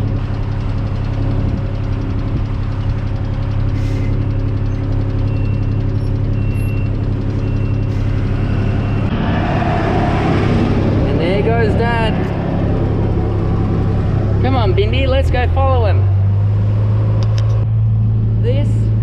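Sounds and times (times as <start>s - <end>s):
farm vehicle engine running: 0.0s - 19.0s.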